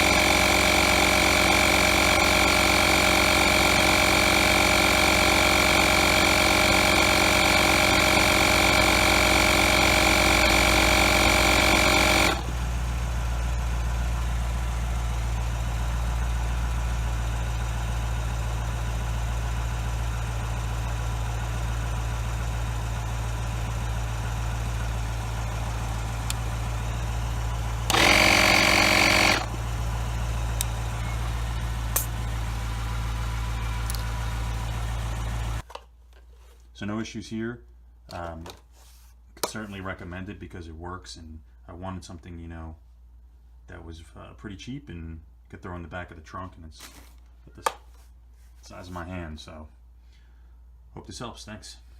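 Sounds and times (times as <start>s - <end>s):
car engine idling: 0.0s - 35.6s
tire inflator whining: 0.0s - 35.7s.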